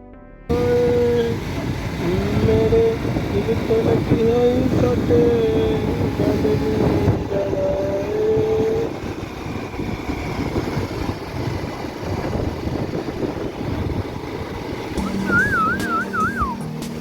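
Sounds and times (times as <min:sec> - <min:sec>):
motorbike road and wind noise: 0:00.5 - 0:17.0
held tone: 0:15.0 - 0:16.7
music with wavering melody: 0:15.0 - 0:17.0.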